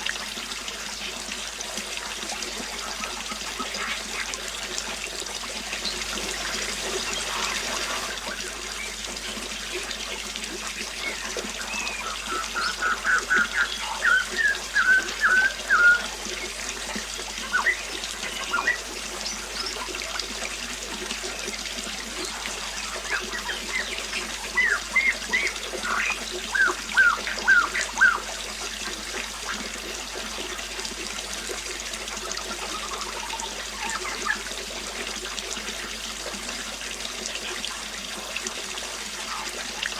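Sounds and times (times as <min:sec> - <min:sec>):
water trickling: 0:00.0 - 0:39.9
bird singing repeated notes: 0:11.0 - 0:16.6, 0:17.3 - 0:19.9, 0:22.8 - 0:28.3.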